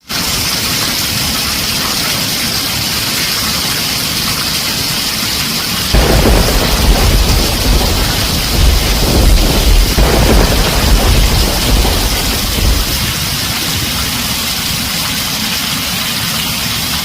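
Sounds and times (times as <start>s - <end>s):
heavy rain on a tin roof: 0.0s - 17.0s
deep rumble of thunder: 5.9s - 14.9s.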